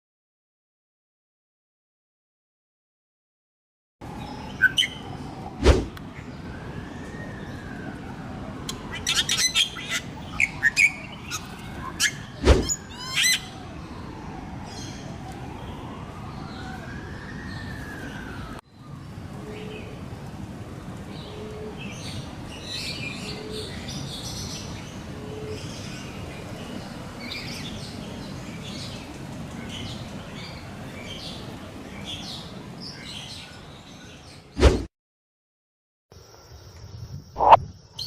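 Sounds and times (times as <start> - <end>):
birds chirping: 8.6 - 16.6, 37.3 - 38.0.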